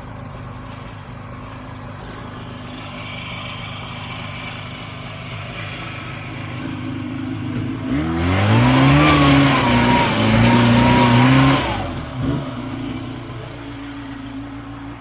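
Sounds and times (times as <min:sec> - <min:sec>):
spinning track rushing: 0:02.0 - 0:12.3
snowmobile engine revving: 0:02.0 - 0:14.8.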